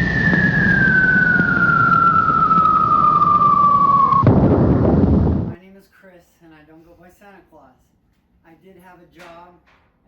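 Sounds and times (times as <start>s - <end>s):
high whine falling in pitch: 0.0s - 5.6s.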